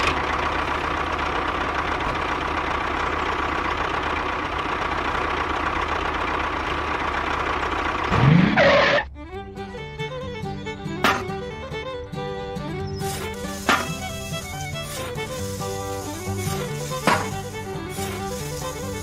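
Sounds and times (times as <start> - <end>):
small motor running with whine: 12.4 - 19.0.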